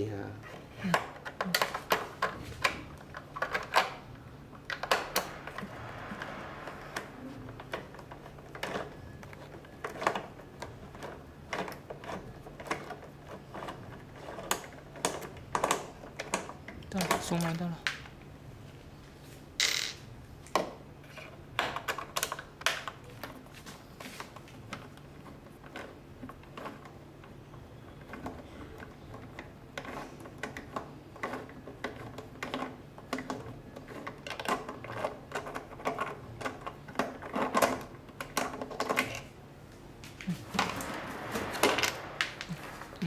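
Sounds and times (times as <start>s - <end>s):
hard parts clicking and knocking: 0.0s - 18.1s, 24.7s - 39.4s
faint low hum: 39.1s - 43.0s.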